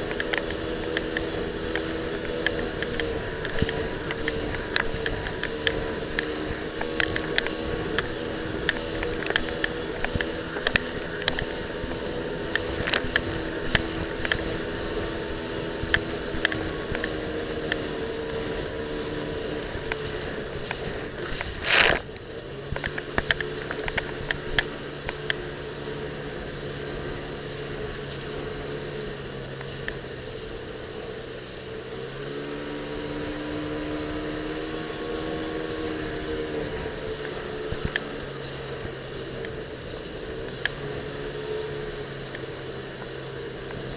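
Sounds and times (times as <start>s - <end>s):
camera rattling against life vest: 0.0s - 25.8s, 35.2s - 43.9s
jet ski engine running: 0.0s - 43.9s
rush of noise: 0.0s - 43.9s.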